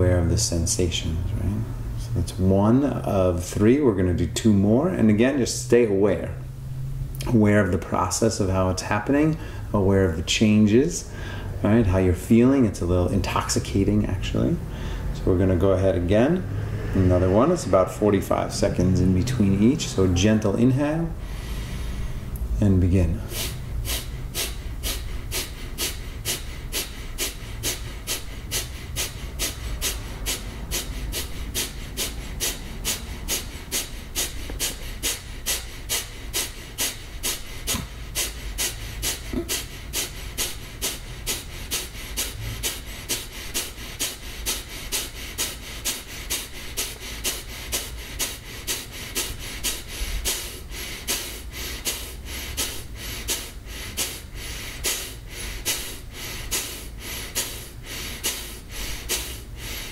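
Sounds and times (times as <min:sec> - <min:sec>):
man exhaling forcefully through nose: 0:21.2 - 0:22.3, 0:23.2 - 0:59.9.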